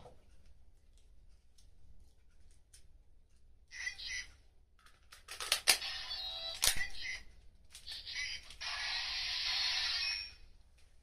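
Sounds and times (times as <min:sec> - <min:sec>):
toy electronic sound effects: 0:05.8 - 0:07.2, 0:07.8 - 0:10.5.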